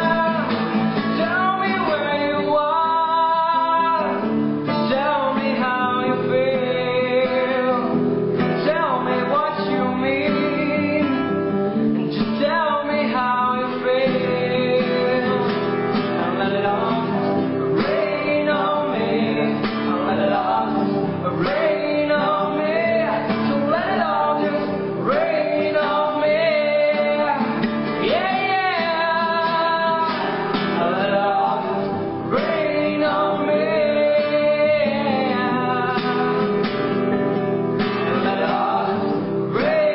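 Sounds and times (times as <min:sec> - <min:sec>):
person singing: 0:00.0 - 0:11.3, 0:12.2 - 0:36.9, 0:37.9 - 0:39.9
acoustic guitar: 0:00.0 - 0:39.9.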